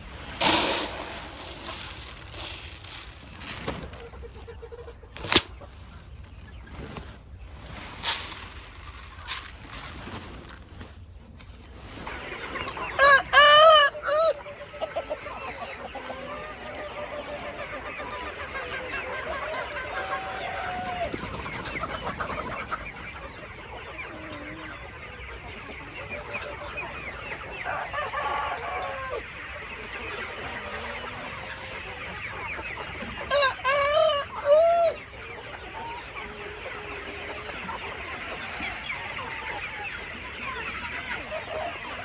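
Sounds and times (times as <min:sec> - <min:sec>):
chickens clucking: 0:00.0 - 0:42.0
rooster crowing: 0:13.0 - 0:14.3.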